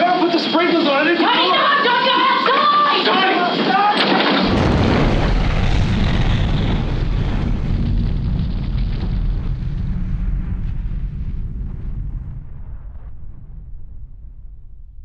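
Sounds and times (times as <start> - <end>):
bushfire roaring: 4.4 - 14.8.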